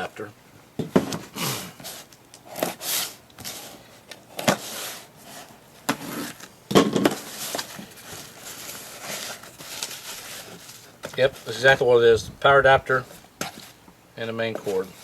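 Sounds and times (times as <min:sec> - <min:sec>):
packaging rustling and crinkling: 0:06.1 - 0:11.6.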